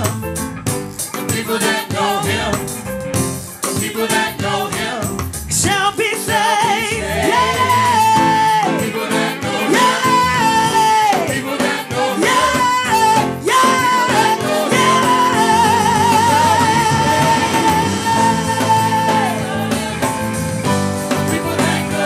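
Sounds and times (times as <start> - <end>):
live gospel band: 0.0 - 22.0
person singing: 5.6 - 20.3.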